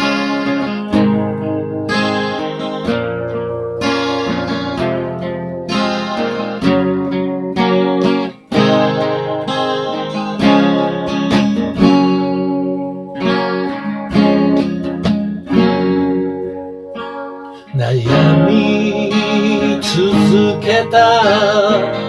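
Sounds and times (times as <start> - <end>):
guitar strumming chords: 0.0 - 22.0.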